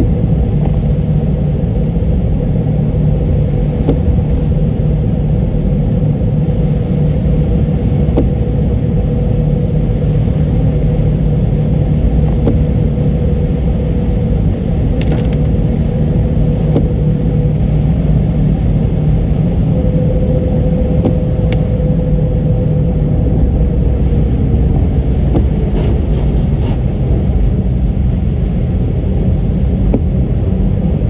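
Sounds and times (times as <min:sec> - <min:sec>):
road and engine rumble: 0:00.0 - 0:31.0.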